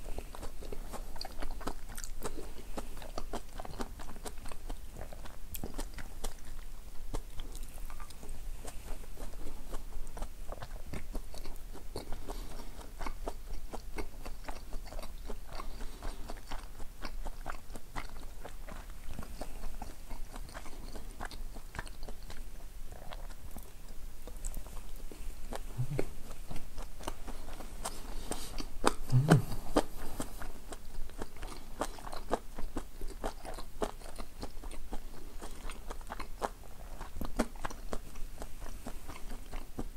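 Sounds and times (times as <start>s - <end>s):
person chewing: 0.0s - 39.9s
mouth clicks: 25.5s - 32.4s.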